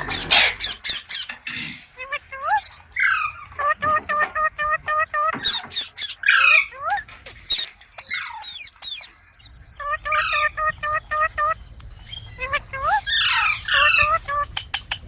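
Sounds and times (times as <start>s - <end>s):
parrot chattering: 0.0s - 15.0s
sharp high-pitched parrot calls: 2.0s - 14.9s
parrot screeches: 2.1s - 9.1s, 9.8s - 11.6s, 12.4s - 14.4s.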